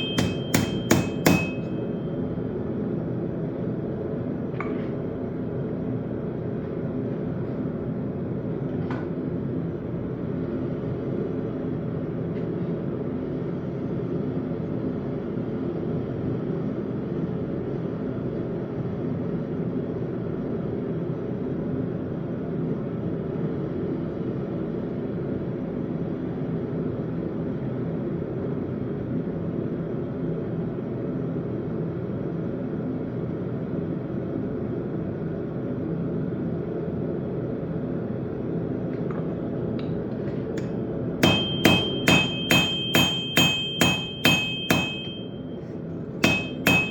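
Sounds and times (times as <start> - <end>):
hammer striking hot metal: 0.0 - 2.2, 40.6 - 45.6, 46.2 - 46.9.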